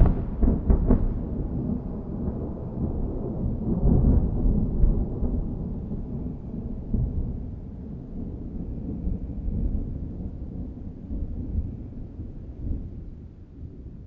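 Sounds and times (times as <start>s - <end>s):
sharp thunder cracks: 0.0s - 7.4s
thunder rumbling: 0.0s - 14.0s.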